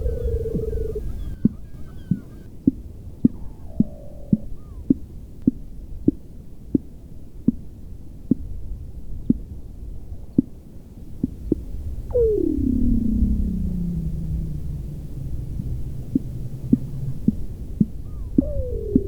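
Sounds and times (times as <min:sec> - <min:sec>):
seal call gliding down: 0:00.0 - 0:02.5, 0:12.1 - 0:19.0
seal calling in low pulses: 0:00.0 - 0:02.6, 0:03.2 - 0:05.0, 0:12.1 - 0:19.0.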